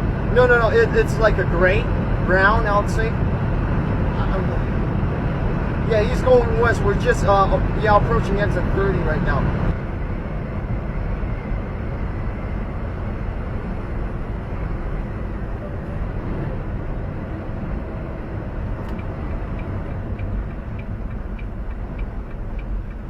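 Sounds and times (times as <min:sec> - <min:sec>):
truck engine and road noise: 0:00.0 - 0:23.0
light ticking: 0:18.8 - 0:23.0.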